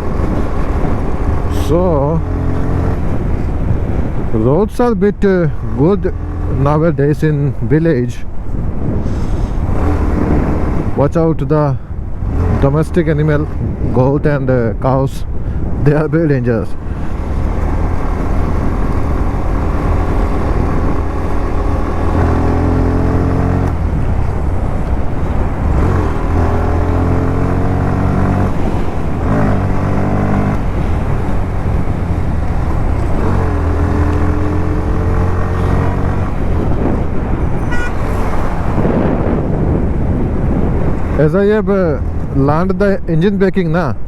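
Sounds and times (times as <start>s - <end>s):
motorcycle engine revving: 0.0s - 3.9s, 8.9s - 11.0s, 12.1s - 13.8s, 16.6s - 42.3s
low rumble and rushing noise: 0.0s - 44.0s.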